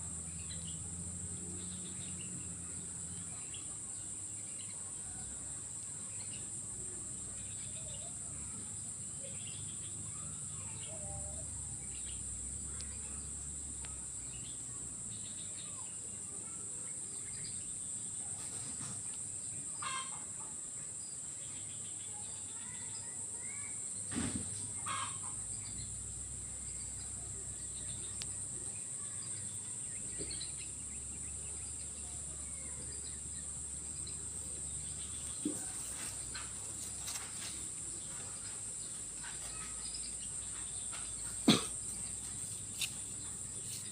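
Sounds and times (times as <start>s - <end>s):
insects droning: 0.0s - 43.9s
bird calls: 19.8s - 20.3s, 24.8s - 25.8s.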